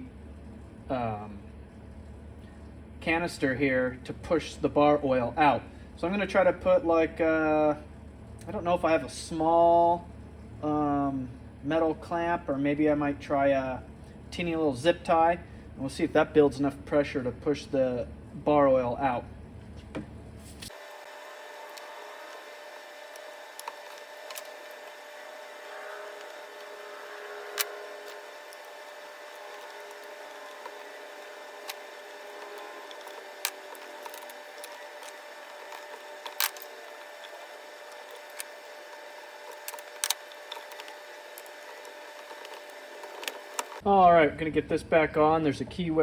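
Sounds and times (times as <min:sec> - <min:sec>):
steady background hum: 0:00.0 - 0:46.0
tools and parts clicking: 0:23.1 - 0:43.8.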